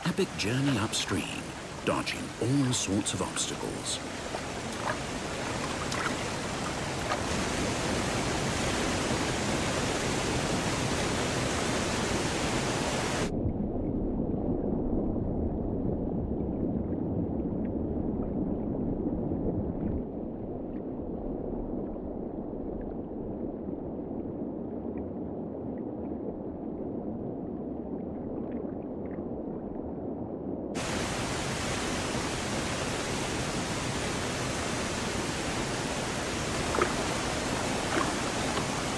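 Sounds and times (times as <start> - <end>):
river water rushing over rocks: 0.0 - 13.3, 30.8 - 38.9.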